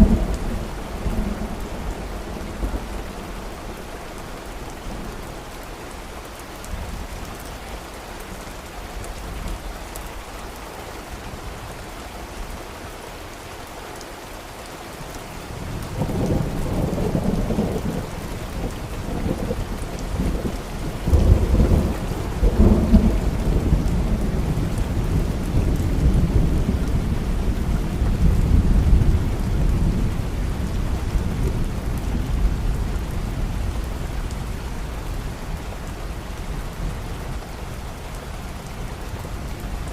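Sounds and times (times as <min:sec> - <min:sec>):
thunder rolling: 0:00.0 - 0:03.3
steady rain: 0:00.0 - 0:39.9.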